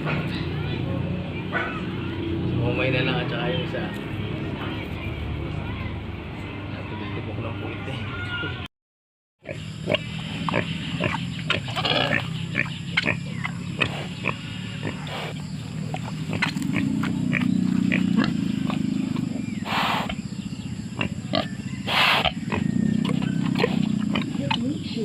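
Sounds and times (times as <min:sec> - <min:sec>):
pigs grunting: 0:09.4 - 0:25.0.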